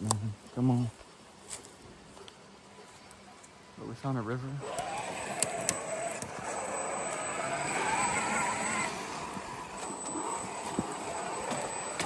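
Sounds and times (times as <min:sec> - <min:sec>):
electric motor whining: 0:04.6 - 0:12.0
sharp clicks: 0:04.7 - 0:06.4.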